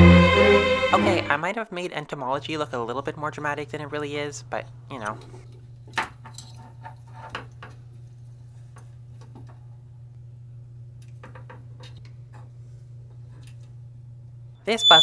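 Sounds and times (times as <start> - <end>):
low hum: 0.0 - 1.4.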